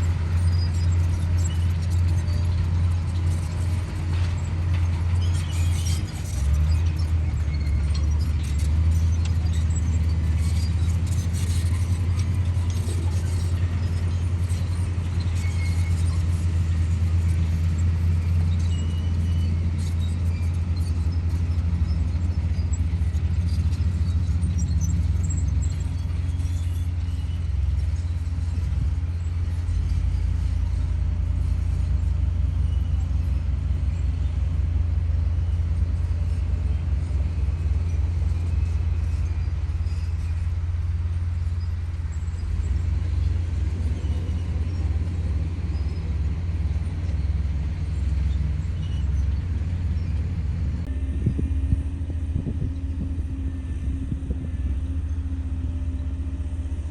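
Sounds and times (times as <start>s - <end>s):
bulldozer diesel engine droning: 0.0s - 56.9s
high squeaks and clicks: 0.3s - 30.8s.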